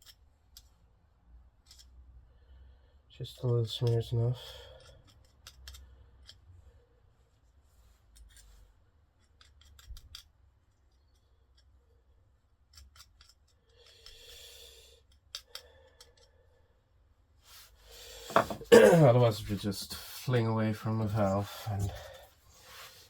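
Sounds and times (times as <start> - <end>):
small metal parts clicking: 0.0 - 0.8, 1.6 - 2.0, 4.6 - 6.5, 9.2 - 11.8, 12.6 - 14.3, 15.0 - 16.4.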